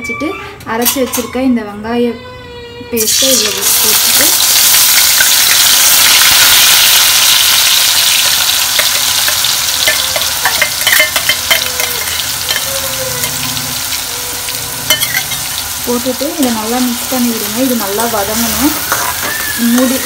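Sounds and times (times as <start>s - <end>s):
onion paste sizzling in hot oil: 3.0s - 20.0s
metal spoon clinking and scraping: 8.7s - 13.9s, 14.9s - 15.6s, 18.3s - 20.0s.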